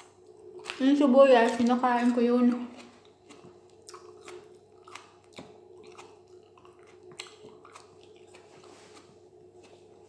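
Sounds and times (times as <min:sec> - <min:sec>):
person chewing food: 0:00.0 - 0:10.0
wet mouth clicks and smacks: 0:02.5 - 0:08.5.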